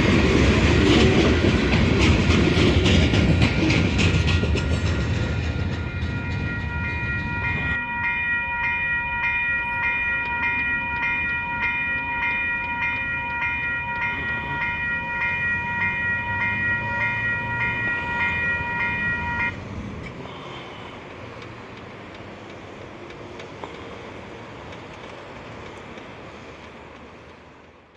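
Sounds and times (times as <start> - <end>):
freight train cars rumbling: 0.0 - 27.9
level crossing bell ringing: 4.2 - 19.5.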